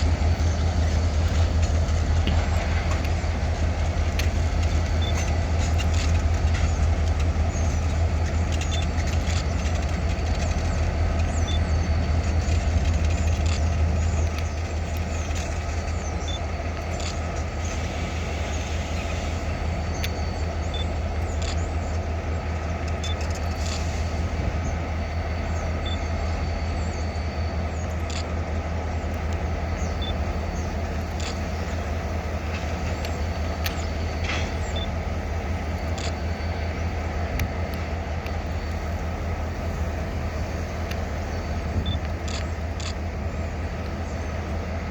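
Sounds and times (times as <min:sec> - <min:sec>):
diesel locomotive engines droning: 0:00.0 - 0:44.9
light clicks and clanks: 0:00.3 - 0:17.5.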